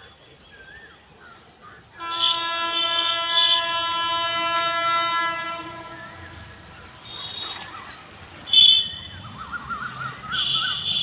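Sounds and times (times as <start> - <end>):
train air horn blast: 2.0 - 6.5.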